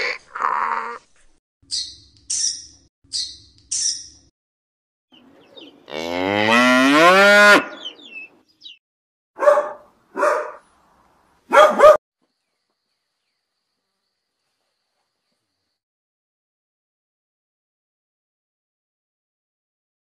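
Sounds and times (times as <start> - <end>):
cow mooing: 5.9 - 7.9.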